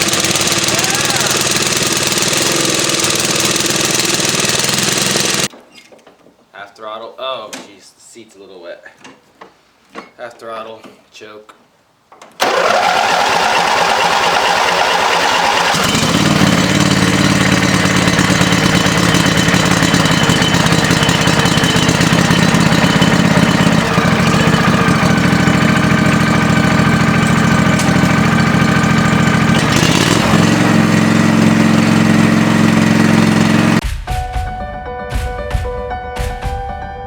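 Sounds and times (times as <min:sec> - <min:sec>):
riding mower engine running: 0:00.0 - 0:05.5, 0:12.4 - 0:33.8.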